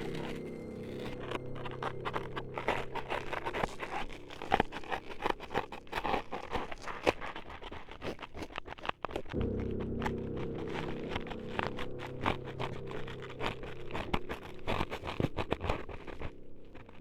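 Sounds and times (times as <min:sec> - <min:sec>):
close-miked scraping and scratching: 0:00.0 - 0:17.0
sharp clicks and crunches: 0:00.0 - 0:17.0.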